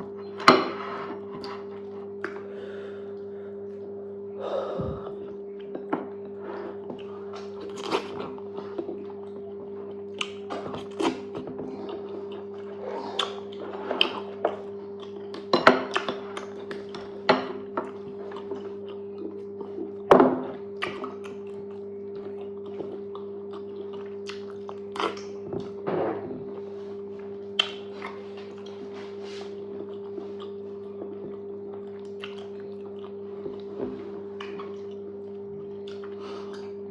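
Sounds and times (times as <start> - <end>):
steady low hum: 0.0 - 36.9
wet chewing and mouth smacks: 6.9 - 17.1, 20.8 - 25.8, 27.5 - 33.7, 34.4 - 36.7.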